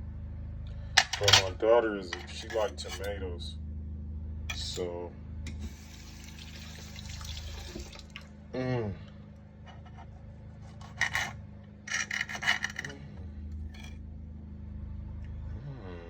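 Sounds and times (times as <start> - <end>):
steady low hum: 0.0 - 16.0
rough scraping and rubbing: 9.7 - 13.0.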